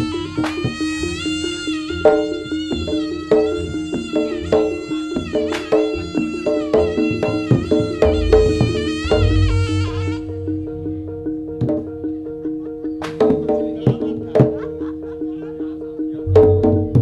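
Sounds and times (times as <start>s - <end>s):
percussion strikes: 0.0s - 17.0s
wavering wind instrument melody: 0.0s - 17.0s
low drone: 7.8s - 12.8s.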